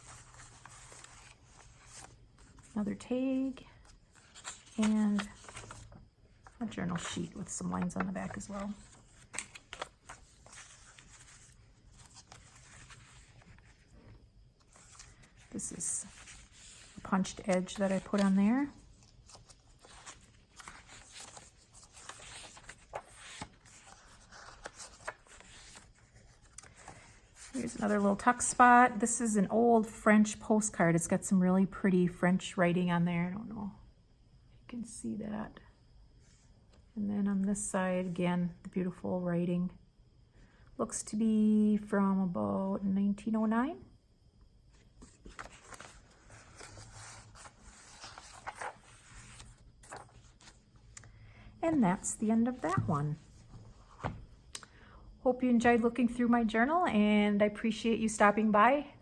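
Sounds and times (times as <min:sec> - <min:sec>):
paper pages rustling: 0:00.0 - 0:02.8, 0:03.4 - 0:28.6, 0:44.7 - 0:50.7.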